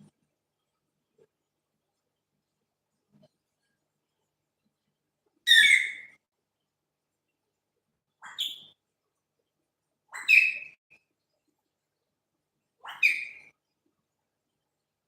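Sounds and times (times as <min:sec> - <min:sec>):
parrot calling: 0:05.5 - 0:06.2, 0:12.8 - 0:13.5.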